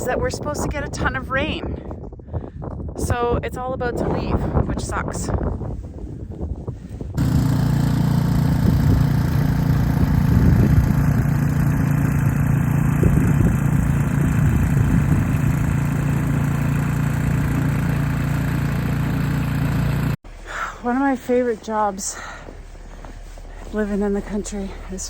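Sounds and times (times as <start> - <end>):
snowblower engine running: 7.2 - 20.2.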